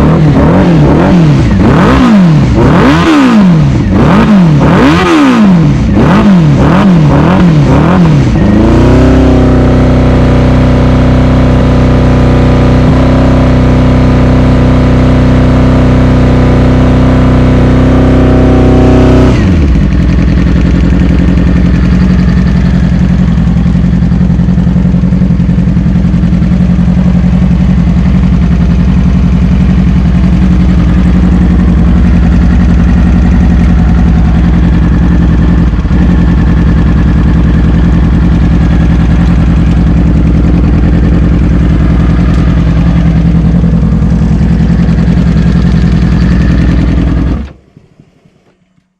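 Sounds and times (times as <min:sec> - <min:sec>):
motorcycle engine revving and idling: 0:00.0 - 0:48.9.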